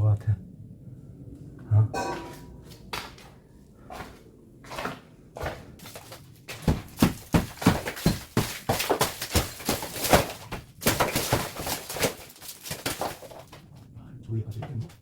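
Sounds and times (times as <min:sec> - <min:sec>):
blows breaking a mud-plastered structure: 0:05.8 - 0:13.6.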